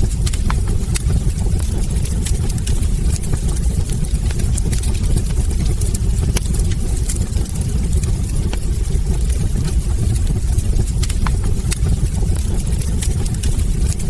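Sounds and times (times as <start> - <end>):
logs crackling and popping: 0.0 - 14.0
low rumble of flames: 0.0 - 14.0.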